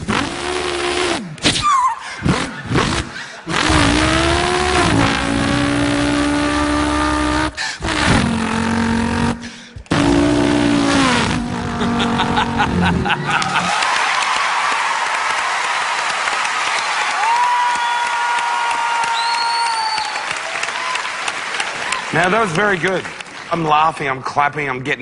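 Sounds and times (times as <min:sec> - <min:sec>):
man imitating car engine: 0:00.0 - 0:13.7.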